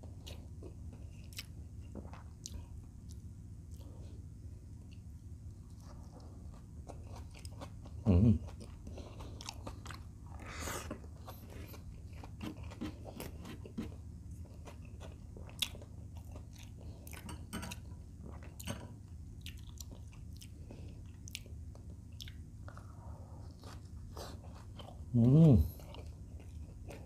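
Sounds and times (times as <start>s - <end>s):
low steady hum: 0.0s - 27.0s
chewing and biting: 5.7s - 17.3s, 19.4s - 22.9s.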